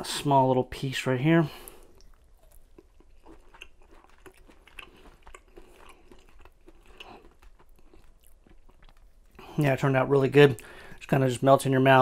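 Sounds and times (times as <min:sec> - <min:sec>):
person chewing: 0:01.5 - 0:09.8
faint mouth clicks and smacks: 0:01.6 - 0:09.4.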